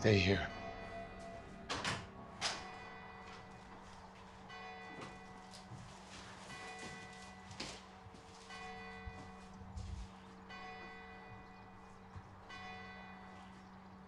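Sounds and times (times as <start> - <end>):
bell tolling: 0.0 - 5.7
low hum: 0.0 - 14.0.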